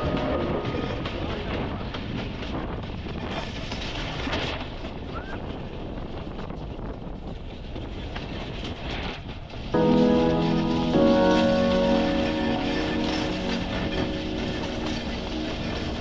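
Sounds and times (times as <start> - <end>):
wind buffeting microphone: 0.0 - 9.8
train rumbling along track: 0.0 - 16.0.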